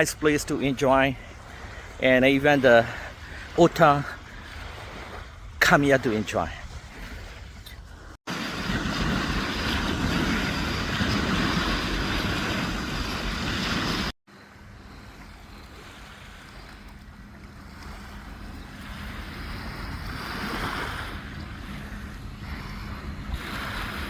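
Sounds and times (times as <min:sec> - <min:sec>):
waves washing on beach: 0:00.0 - 0:24.0
wind on microphone: 0:06.4 - 0:14.1, 0:14.8 - 0:24.0.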